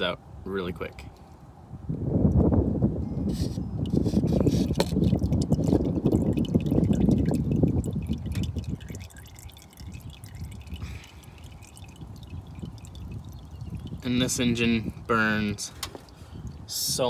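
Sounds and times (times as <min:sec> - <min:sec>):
oil splashing into a pan: 0:04.6 - 0:15.0.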